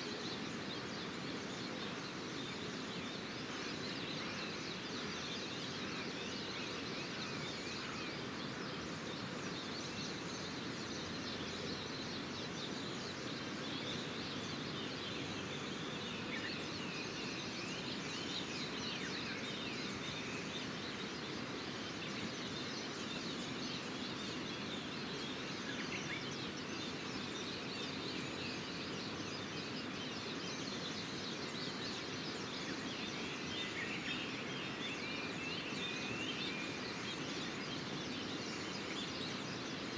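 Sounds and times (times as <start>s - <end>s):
small birds chirping: 9.2s - 39.9s.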